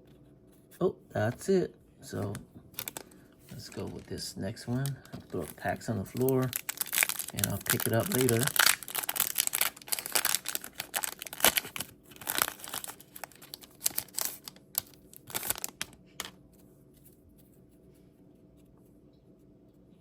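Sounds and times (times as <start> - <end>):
foil wrapper tearing and crinkling: 2.3 - 16.3.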